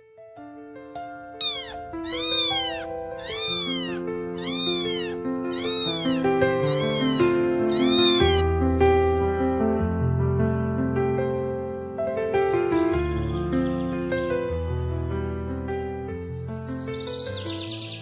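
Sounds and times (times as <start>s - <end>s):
soft piano music: 0.0s - 18.0s
cat meowing: 1.4s - 8.4s.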